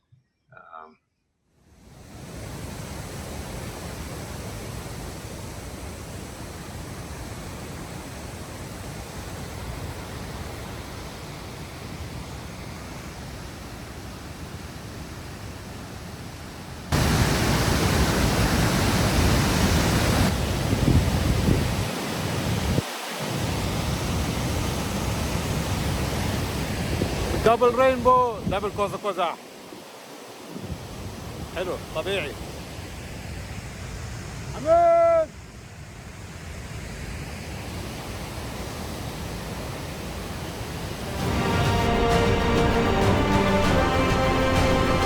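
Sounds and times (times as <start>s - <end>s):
waterfall roaring: 2.0s - 30.5s, 37.6s - 45.0s.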